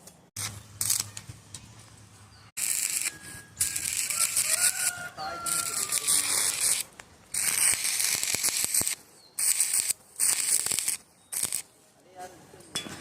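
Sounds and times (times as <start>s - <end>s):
arc welding crackling: 0.4s - 1.3s, 2.6s - 11.7s.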